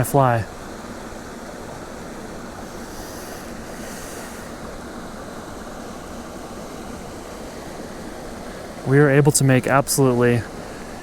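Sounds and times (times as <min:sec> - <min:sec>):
creek rapids rushing: 0:00.0 - 0:11.0
short bright hiss: 0:02.6 - 0:04.9.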